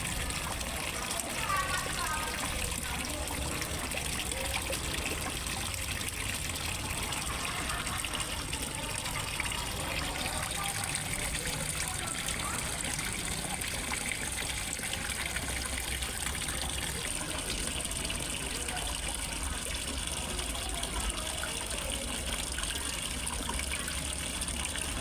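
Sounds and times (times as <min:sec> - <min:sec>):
water trickling and splashing: 0:00.0 - 0:25.0.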